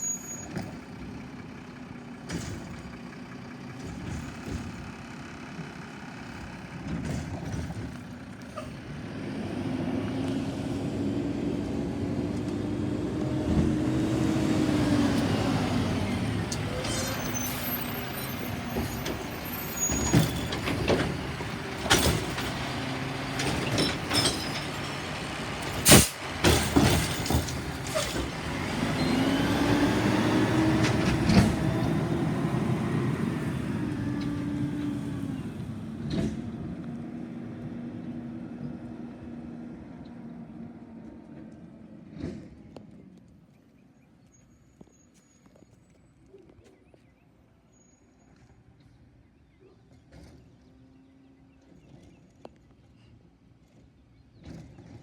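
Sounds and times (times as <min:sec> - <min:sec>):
truck diesel engine running: 0:00.0 - 0:41.9
knocks and clanks of cart: 0:00.4 - 0:10.3, 0:15.1 - 0:29.3, 0:30.5 - 0:32.3, 0:33.9 - 0:37.0, 0:41.1 - 0:43.0.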